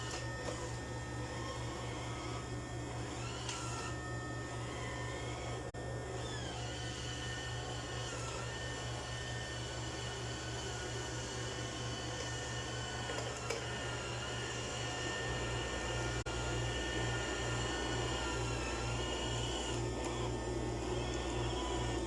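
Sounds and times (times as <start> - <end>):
robot vacuum motor whine: 0.0 - 22.0.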